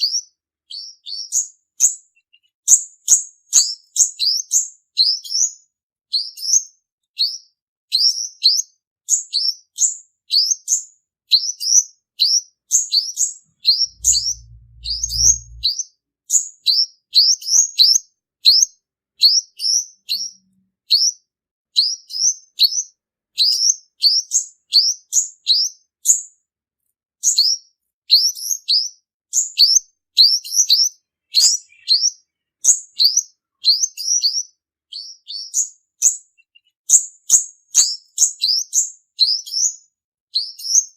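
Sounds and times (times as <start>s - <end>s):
bird singing high chirps: 0.0s - 15.8s, 18.4s - 21.2s, 28.2s - 40.9s
brief low hum: 13.8s - 15.7s.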